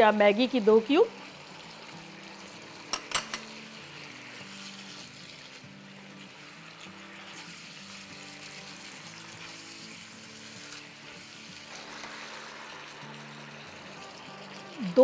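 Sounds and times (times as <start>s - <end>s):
chicken sizzling in a wok: 0.0s - 15.0s
soft background music: 0.0s - 15.0s
spatula stirring in wok: 3.4s - 13.6s.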